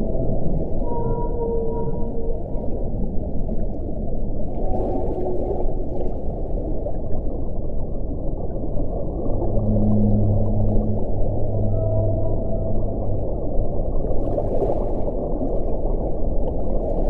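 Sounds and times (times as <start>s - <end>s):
faint moaning tones: 0.0s - 6.4s, 8.6s - 15.3s.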